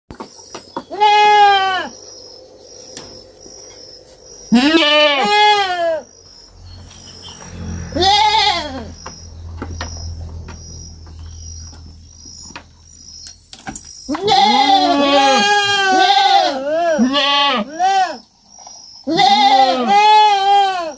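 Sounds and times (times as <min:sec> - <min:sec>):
young goat bleating: 0:00.9 - 0:01.9, 0:04.5 - 0:06.0, 0:07.8 - 0:08.9, 0:14.2 - 0:18.2, 0:19.0 - 0:20.9.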